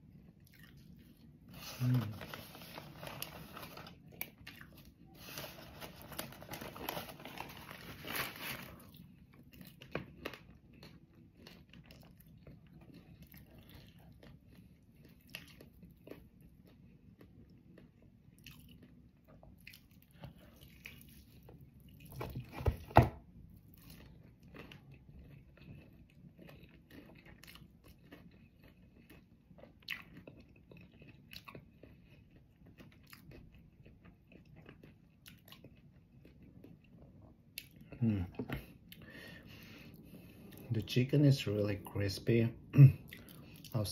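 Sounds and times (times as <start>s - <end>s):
person chewing crispy chicken: 0.0s - 22.7s, 23.4s - 41.3s, 42.8s - 43.9s
paper bag rustling: 1.6s - 4.0s, 5.2s - 8.8s.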